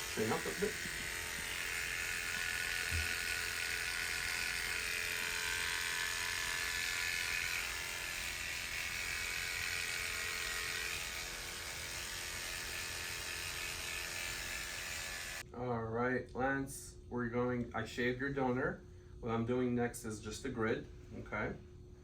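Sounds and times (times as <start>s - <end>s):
electric hair clippers buzzing: 0.0s - 15.4s.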